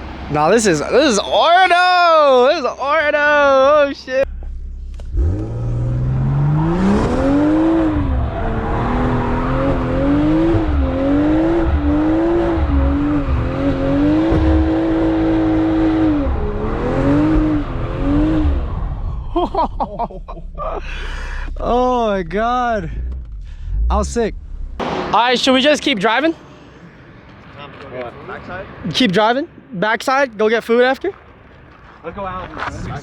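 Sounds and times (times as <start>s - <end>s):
car engine revving: 4.2s - 29.7s.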